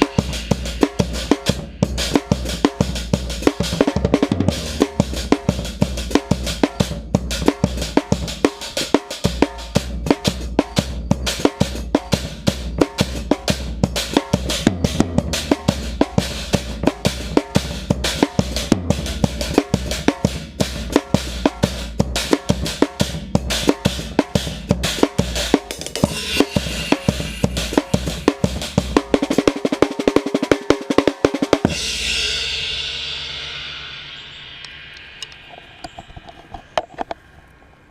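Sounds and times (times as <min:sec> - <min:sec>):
cymbal crash ringing: 0:00.0 - 0:02.5, 0:26.0 - 0:29.0, 0:31.7 - 0:36.8
rapid drum roll: 0:00.0 - 0:36.8
drum kit groove: 0:00.0 - 0:37.0.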